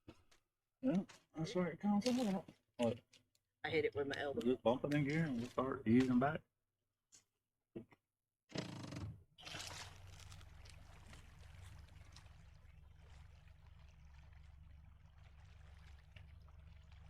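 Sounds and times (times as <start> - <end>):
outboard motor humming: 8.6 - 17.0
water lapping at hull: 9.4 - 17.0.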